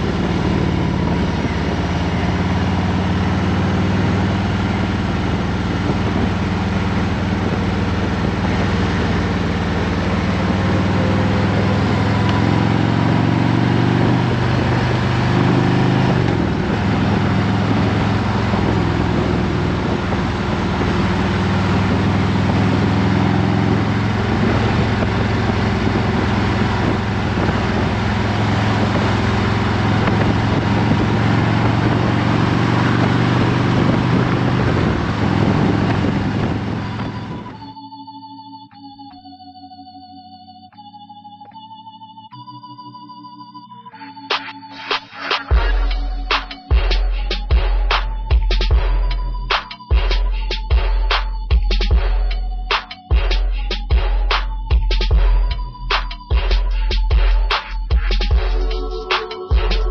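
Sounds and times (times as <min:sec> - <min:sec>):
motorcycle engine running: 0:00.0 - 0:37.6, 0:45.5 - 0:59.9
wind rush: 0:04.9 - 0:11.9, 0:13.2 - 0:23.0, 0:23.7 - 0:37.6.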